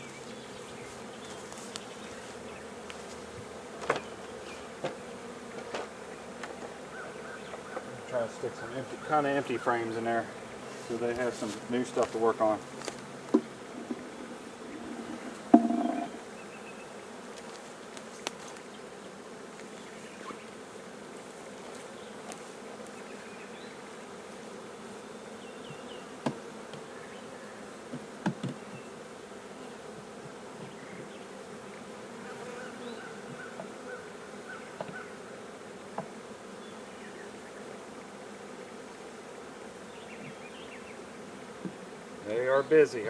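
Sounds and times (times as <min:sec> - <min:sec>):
bees buzzing: 0:00.0 - 0:43.0
knocks on hive box: 0:03.8 - 0:04.1, 0:15.2 - 0:16.2, 0:26.2 - 0:26.4, 0:27.9 - 0:28.6.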